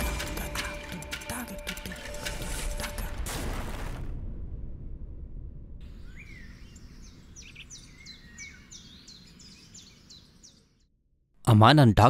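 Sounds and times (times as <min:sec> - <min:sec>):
low rumble: 0:02.5 - 0:07.5
small birds chirping: 0:05.8 - 0:10.9.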